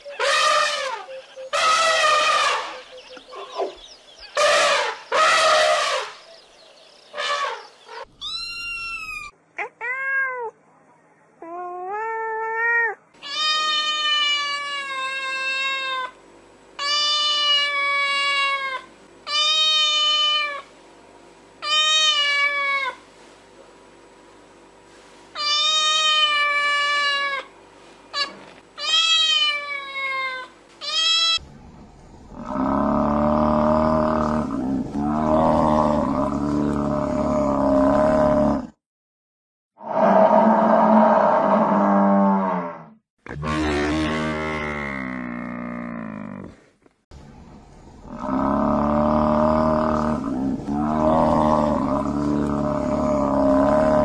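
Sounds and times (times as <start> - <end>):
loud rough noises: 0.2 - 2.8
cat meowing: 8.2 - 10.5.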